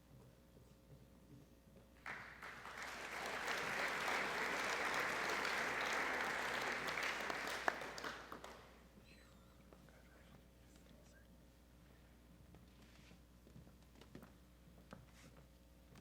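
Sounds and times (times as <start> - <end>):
audience applauding: 2.0 - 8.8.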